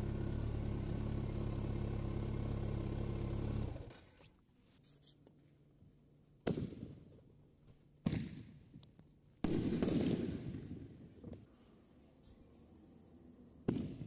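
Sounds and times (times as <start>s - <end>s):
fireworks bangs: 9.4s - 11.0s, 13.6s - 14.0s.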